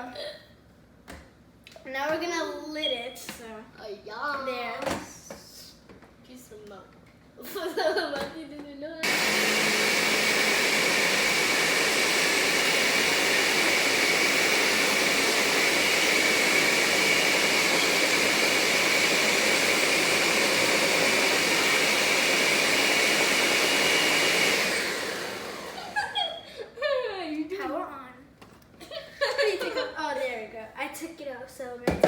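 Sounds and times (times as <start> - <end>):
electric blender running: 9.0 - 26.6.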